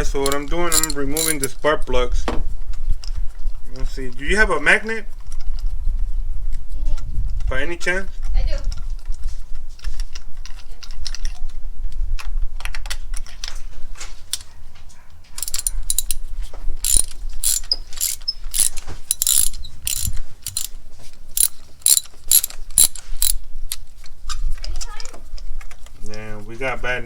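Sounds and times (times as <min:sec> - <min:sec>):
ratchet wrench clicking: 0:00.2 - 0:01.5, 0:15.4 - 0:16.2, 0:16.8 - 0:20.8, 0:21.4 - 0:23.8.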